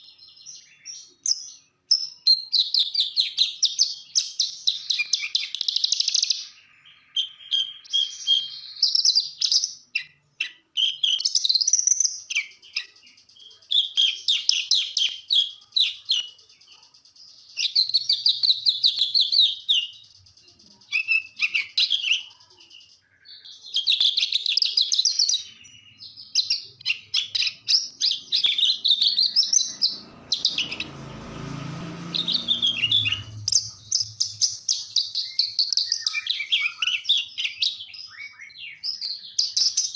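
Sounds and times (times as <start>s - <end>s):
bird twittering song: 0.0s - 39.9s
low rumbling noise: 27.9s - 35.0s.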